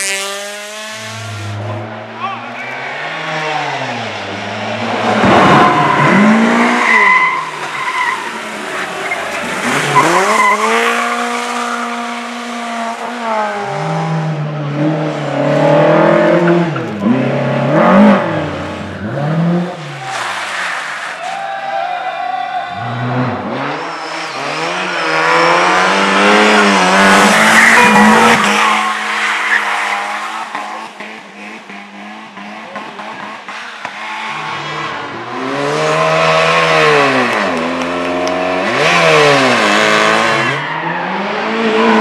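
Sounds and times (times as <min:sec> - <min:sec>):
racing car engine at full throttle: 0:00.0 - 0:21.0, 0:22.7 - 0:42.0
tyres squealing: 0:05.3 - 0:12.0, 0:26.4 - 0:31.0.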